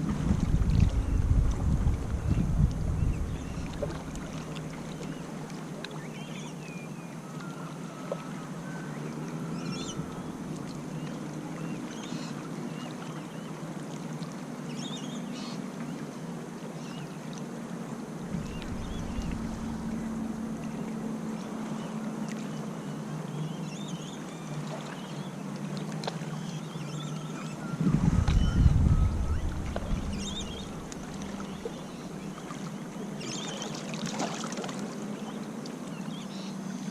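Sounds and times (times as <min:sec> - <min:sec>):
wind rumble on microphone: 0:00.0 - 0:05.3, 0:18.2 - 0:21.4, 0:27.7 - 0:33.0
surf on a beach: 0:00.0 - 0:36.9
wind: 0:00.0 - 0:36.9
small birds chirping: 0:18.4 - 0:20.9, 0:26.4 - 0:33.6.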